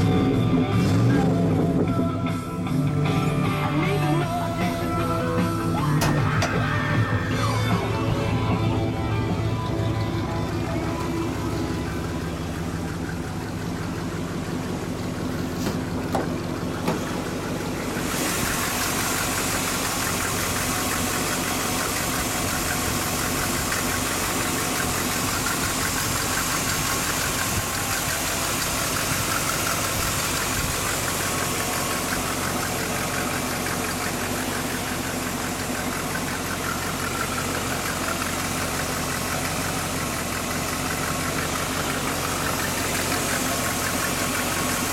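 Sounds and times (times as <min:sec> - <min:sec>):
truck engine idling: 0:00.0 - 0:44.9.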